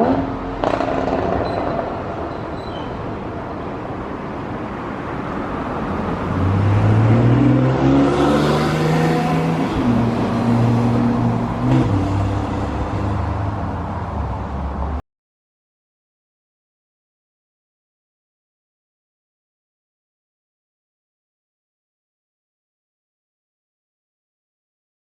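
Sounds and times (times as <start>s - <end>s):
car engine revving: 0.0s - 1.4s, 6.0s - 13.6s.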